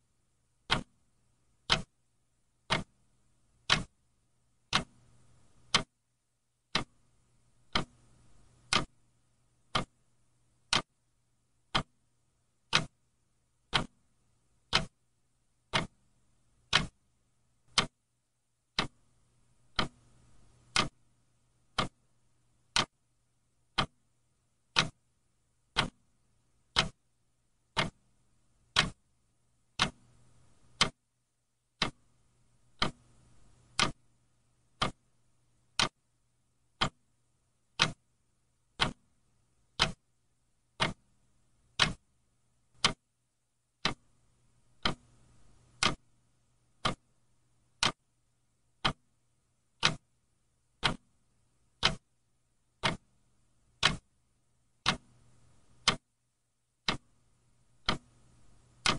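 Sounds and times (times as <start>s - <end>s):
clock ticking: 0.6s - 1.0s, 1.6s - 2.0s, 2.6s - 3.0s, 3.6s - 4.0s, 4.6s - 5.0s, 5.6s - 5.9s, 6.7s - 7.0s, 7.6s - 9.0s, 9.6s - 10.0s, 10.6s - 11.0s, 11.6s - 12.0s, 12.6s - 13.0s, 13.6s - 14.0s, 14.6s - 15.0s, 15.6s - 17.0s, 17.7s - 18.0s, 18.7s - 19.0s, 19.6s - 21.0s, 21.6s - 22.0s, 22.6s - 23.0s, 23.7s - 24.0s, 24.7s - 25.1s, 25.7s - 27.0s, 27.6s - 28.1s, 28.7s - 29.0s, 29.7s - 31.0s, 31.8s - 34.1s, 34.7s - 35.1s, 35.7s - 36.0s, 36.8s - 37.1s, 37.7s - 38.1s, 38.8s - 39.1s, 39.7s - 40.0s, 40.8s - 41.1s, 41.7s - 42.1s, 42.7s - 43.1s, 43.8s - 46.1s, 46.7s - 47.2s, 47.8s - 48.0s, 48.8s - 49.2s, 49.8s - 50.2s, 50.8s - 51.2s, 51.8s - 52.1s, 52.8s - 53.2s, 53.8s - 54.1s, 54.8s - 56.1s, 56.8s - 57.1s, 57.8s - 58.9s.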